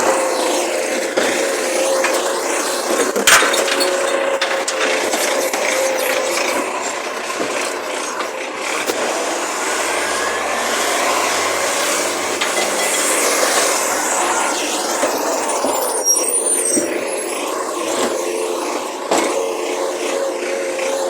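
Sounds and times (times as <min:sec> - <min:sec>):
garbage truck engine running: 0:00.6 - 0:20.0
faint high whine: 0:09.0 - 0:21.0.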